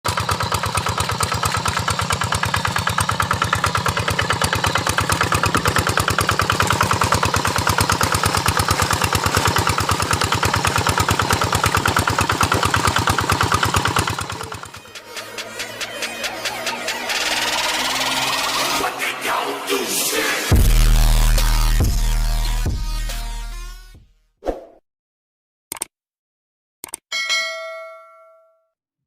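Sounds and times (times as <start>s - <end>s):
small engine chugging: 0.1s - 19.0s.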